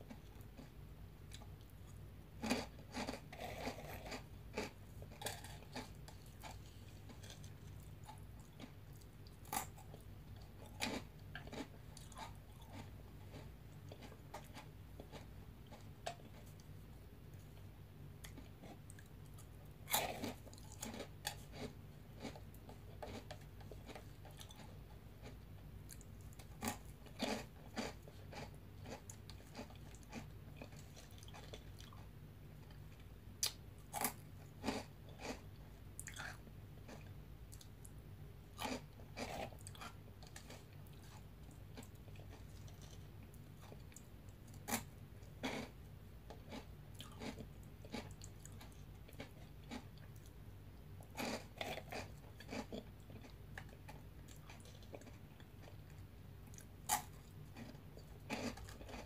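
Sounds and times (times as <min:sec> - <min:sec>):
faint low hum: 0:00.0 - 0:59.0
person crunching snacks: 0:02.4 - 0:08.8, 0:10.6 - 0:16.5, 0:19.9 - 0:32.0, 0:33.4 - 0:35.4, 0:36.0 - 0:37.1, 0:38.6 - 0:43.0, 0:46.5 - 0:50.3, 0:51.2 - 0:55.2, 0:56.5 - 0:59.0.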